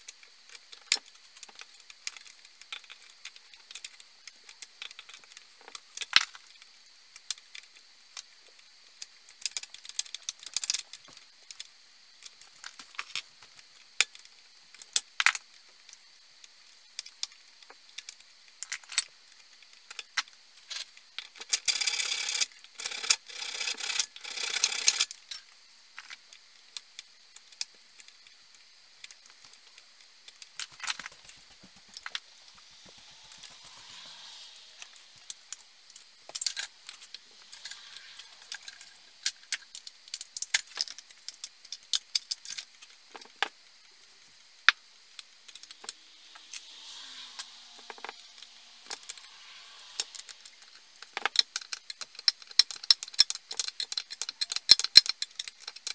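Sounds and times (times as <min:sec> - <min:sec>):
faint hissing: 0:25.3 - 0:54.5.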